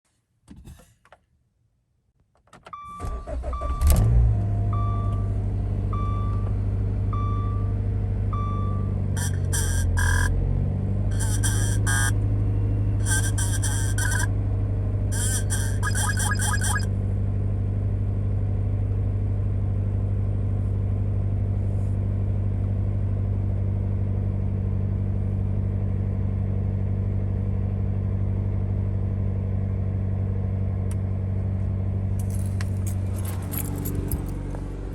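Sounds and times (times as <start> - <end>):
car engine cranking and idling: 3.0 - 6.9, 9.0 - 14.2, 30.6 - 34.9
electronic warning beeps: 8.4 - 10.4, 11.1 - 12.2, 13.0 - 14.3, 15.1 - 16.9.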